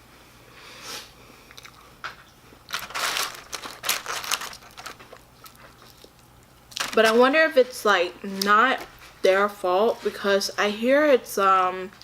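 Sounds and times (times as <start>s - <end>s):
crunchy food chewing: 1.4s - 7.0s.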